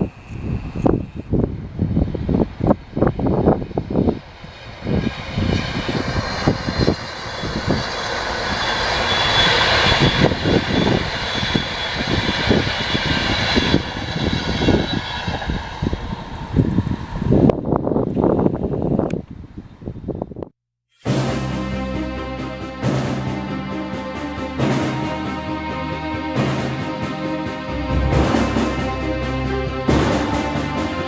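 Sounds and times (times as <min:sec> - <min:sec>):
wind buffeting microphone: 0:00.0 - 0:20.5
train passing at speed: 0:02.6 - 0:17.4, 0:21.1 - 0:31.0.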